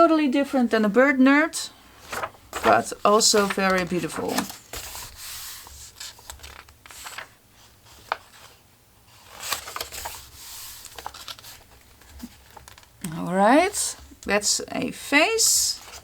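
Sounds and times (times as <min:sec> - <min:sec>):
paper pages rustling: 0:01.9 - 0:13.0, 0:15.8 - 0:16.0.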